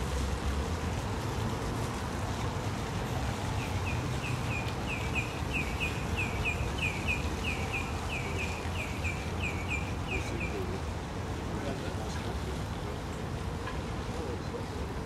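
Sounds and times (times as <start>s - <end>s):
low rumble of city noise: 0.0s - 15.0s
bird chirping: 3.6s - 10.6s.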